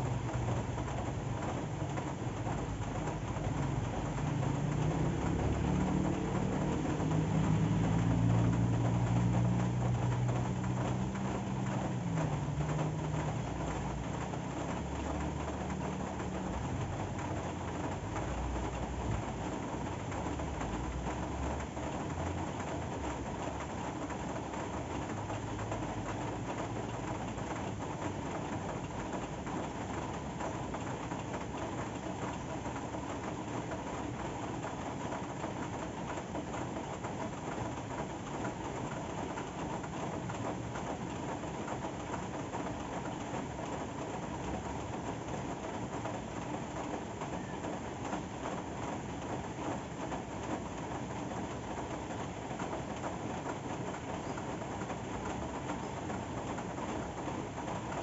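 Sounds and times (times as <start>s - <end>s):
steady rain: 0.0s - 58.0s
vehicle engine passing: 3.5s - 18.7s.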